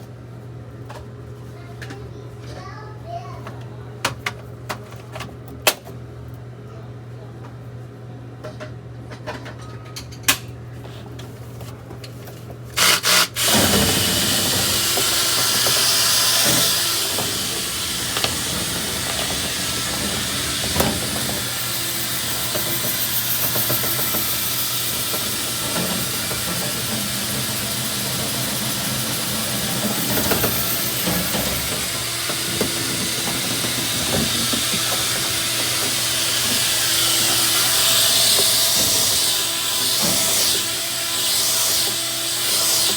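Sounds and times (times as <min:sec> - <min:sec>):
machine running with loud hiss: 0:12.8 - 0:42.9.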